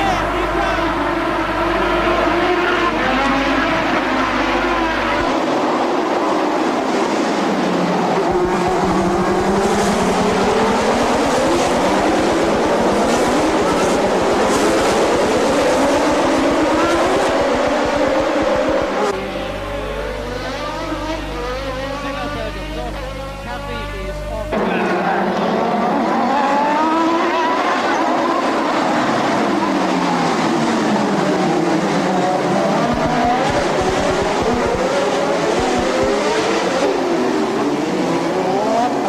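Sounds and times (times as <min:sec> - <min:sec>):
racing car engine revving: 0:00.0 - 0:39.0.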